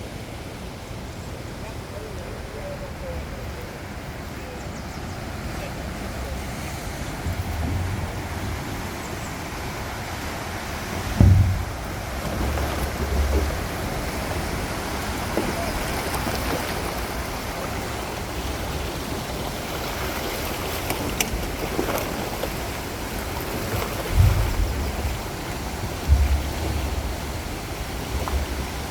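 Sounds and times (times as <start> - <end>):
river rushing: 0.0 - 28.9
wind buffeting microphone: 6.2 - 16.3, 22.6 - 28.9.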